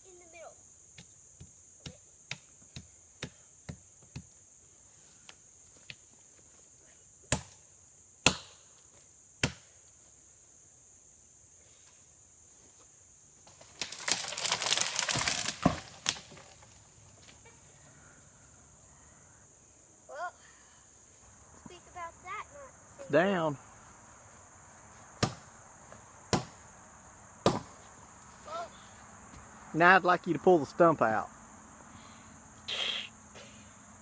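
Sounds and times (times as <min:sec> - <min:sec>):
high insect buzz: 0:00.0 - 0:30.0, 0:30.8 - 0:34.0
axe chopping tree trunk: 0:07.3 - 0:07.6, 0:08.2 - 0:08.6, 0:09.4 - 0:09.7, 0:25.2 - 0:25.4, 0:26.3 - 0:26.6, 0:27.4 - 0:27.8
tree falling through branches: 0:13.5 - 0:17.4.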